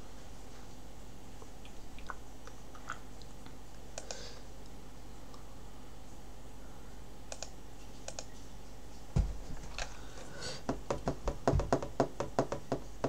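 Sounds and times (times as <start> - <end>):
dull thump: 10.7 - 12.5.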